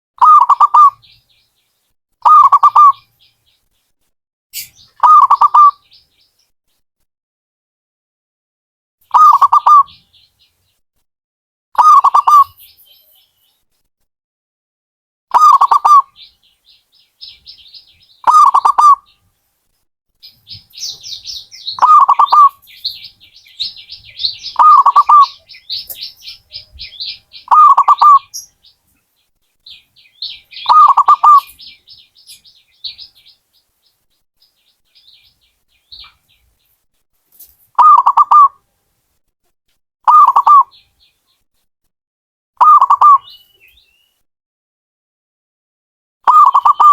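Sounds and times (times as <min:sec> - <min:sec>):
dove cooing: 0:00.2 - 0:00.9, 0:09.1 - 0:09.9, 0:18.2 - 0:19.0, 0:20.5 - 0:28.4, 0:30.2 - 0:31.6, 0:37.8 - 0:38.5, 0:40.1 - 0:40.7, 0:42.6 - 0:43.2
small birds twittering: 0:00.2 - 0:03.9, 0:04.6 - 0:06.5, 0:09.1 - 0:10.8, 0:11.8 - 0:13.6, 0:15.3 - 0:19.3, 0:20.2 - 0:36.8, 0:37.4 - 0:38.5, 0:40.1 - 0:41.4, 0:42.6 - 0:44.2, 0:46.3 - 0:46.9.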